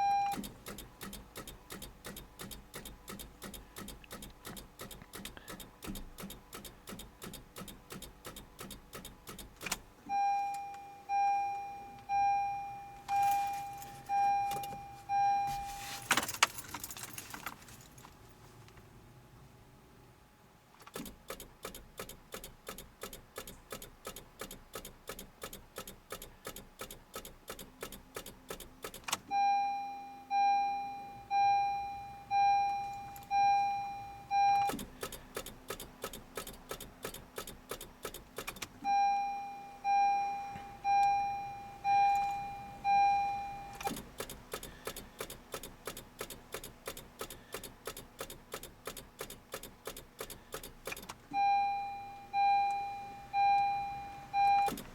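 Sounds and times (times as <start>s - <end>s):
car warning chime: 0.0s - 0.6s, 10.1s - 16.8s, 29.2s - 34.9s, 38.8s - 44.1s, 51.3s - 54.9s
rapid clicking of car starter: 0.3s - 9.9s, 20.8s - 29.4s, 34.4s - 38.9s, 43.7s - 51.5s, 54.4s - 54.9s.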